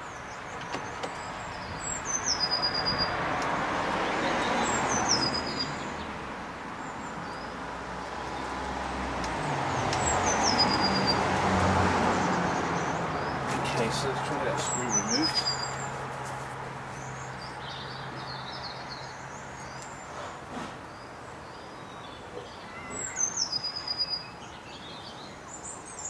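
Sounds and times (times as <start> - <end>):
road traffic: 0.0 - 26.0
bird calling: 13.8 - 15.8, 22.4 - 24.2.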